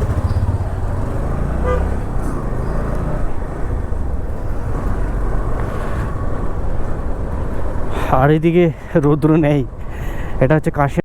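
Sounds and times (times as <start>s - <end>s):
motorcycle engine rumbling: 0.0s - 7.9s
road noise: 0.0s - 11.0s.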